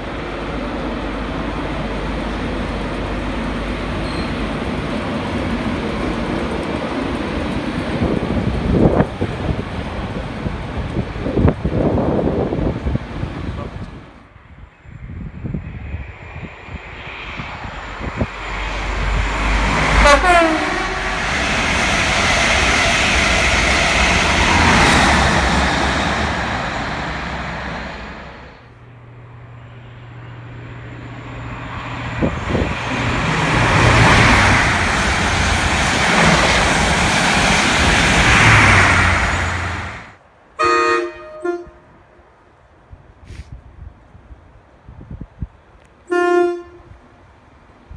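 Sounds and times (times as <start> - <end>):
fast train rushing past: 0.0 - 47.9
train horn: 19.8 - 21.1, 40.6 - 42.0, 46.1 - 47.0.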